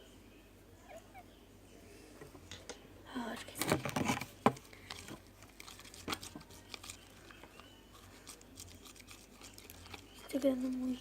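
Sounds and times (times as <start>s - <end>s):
crinkly handling noise: 2.5s - 11.0s.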